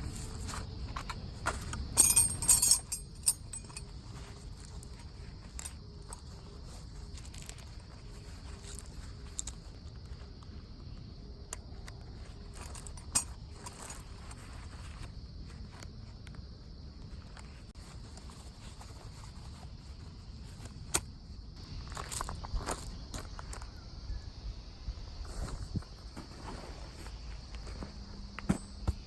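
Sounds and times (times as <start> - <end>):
small metal objects clinking: 2.0 - 3.9.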